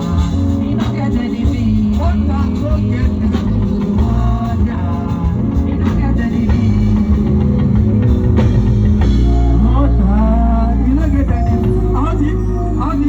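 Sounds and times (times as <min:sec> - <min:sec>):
bass: 0:00.0 - 0:13.0
drum kit: 0:00.0 - 0:13.0
guitar playing: 0:06.2 - 0:13.0.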